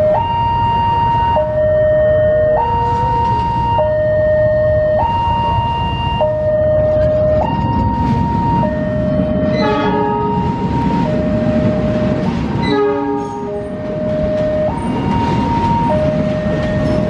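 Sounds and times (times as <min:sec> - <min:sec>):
level crossing two-tone alarm: 0:00.0 - 0:17.0
passing train rumble: 0:00.0 - 0:17.0
train horn blasts: 0:09.4 - 0:11.4, 0:12.6 - 0:13.8.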